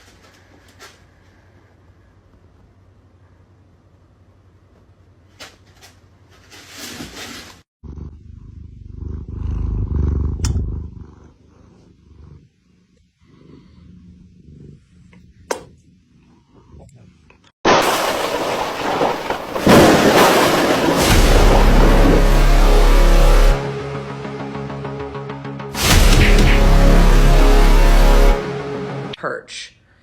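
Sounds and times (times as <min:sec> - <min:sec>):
cat purring rumble: 0:07.8 - 0:15.4, 0:16.0 - 0:17.3
brief noise burst: 0:25.8 - 0:28.4.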